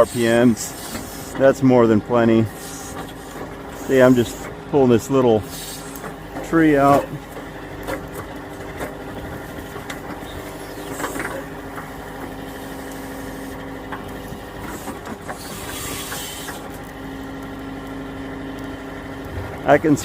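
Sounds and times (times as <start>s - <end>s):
hydraulic hiss: 0.0s - 1.4s, 2.5s - 4.5s, 5.4s - 6.0s, 14.6s - 16.8s
tractor diesel engine running: 0.0s - 20.0s.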